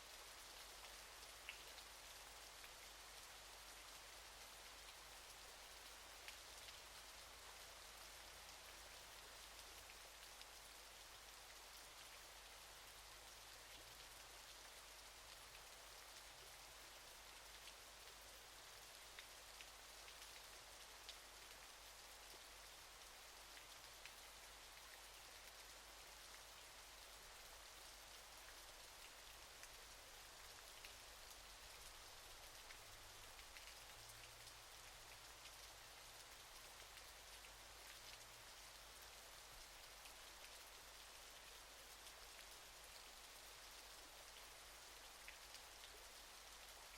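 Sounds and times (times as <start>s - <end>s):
small drips and splashes: 19.1s - 46.9s.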